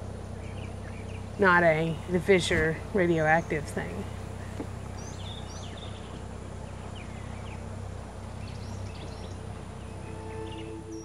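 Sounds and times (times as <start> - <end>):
birds chirping: 0.0 - 11.0
low rumble: 0.0 - 11.0
soft sustained musical tones: 3.2 - 11.0.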